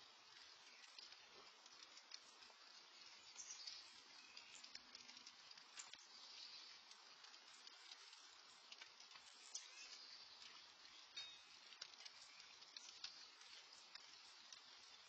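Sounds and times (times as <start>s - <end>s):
light rain falling: 0.0s - 15.0s.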